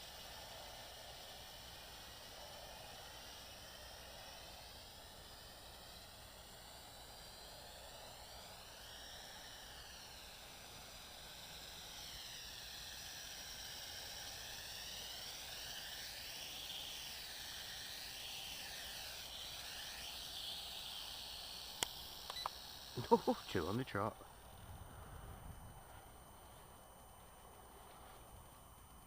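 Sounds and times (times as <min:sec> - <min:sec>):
quadcopter rotors whining: 0:00.0 - 0:29.0.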